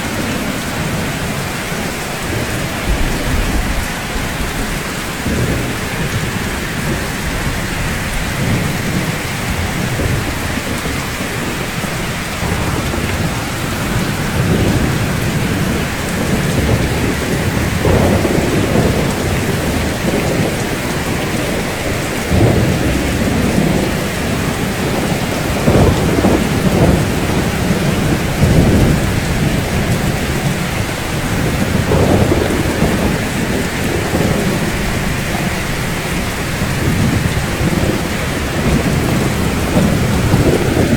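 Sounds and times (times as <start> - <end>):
rain on rooftops: 0.0 - 40.9
thunder rumbling: 0.0 - 40.9.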